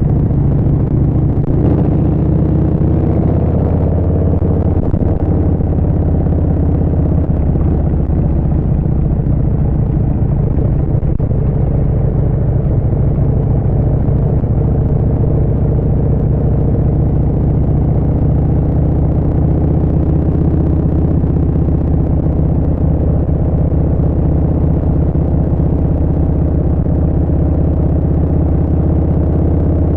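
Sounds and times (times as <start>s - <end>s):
motorcycle engine cruising: 0.0s - 29.9s.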